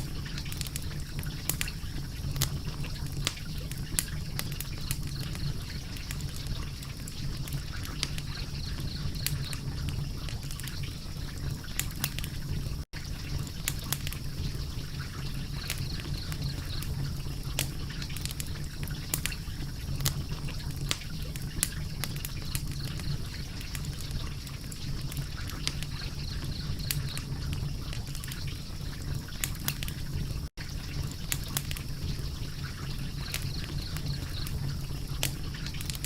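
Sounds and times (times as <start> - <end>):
low rumble of flames: 0.0 - 36.0
wood fire crackling: 0.0 - 36.0.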